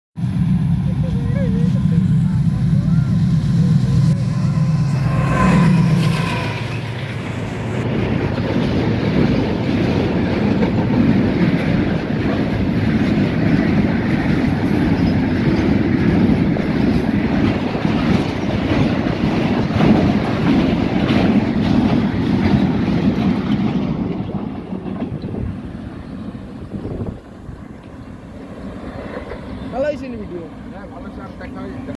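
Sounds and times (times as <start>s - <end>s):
locomotive engine drone: 0.2s - 31.9s
freight wagons rumbling: 0.6s - 31.9s
wheels clattering on rails: 5.8s - 25.7s.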